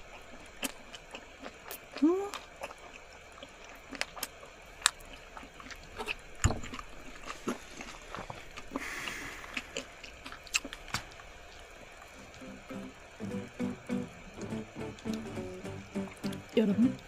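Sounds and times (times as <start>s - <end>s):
wet chewing clicks and smacks: 0.0s - 12.4s.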